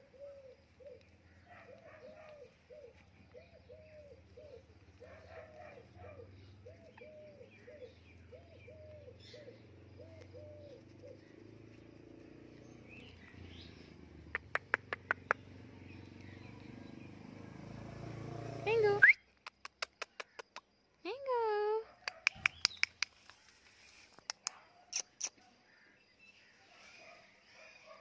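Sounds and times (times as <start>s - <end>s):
dove-like cooing: 0.0s - 11.6s.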